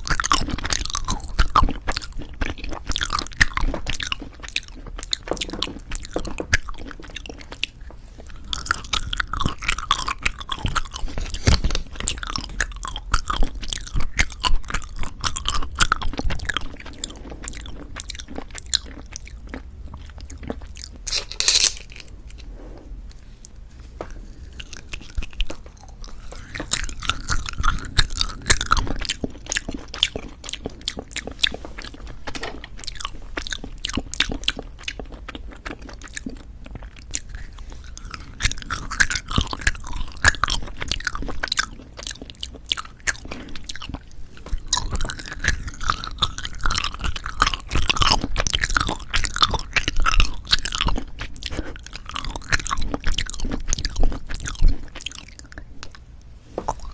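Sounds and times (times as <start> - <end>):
chewing candy: 0.0 - 22.5, 23.4 - 56.9.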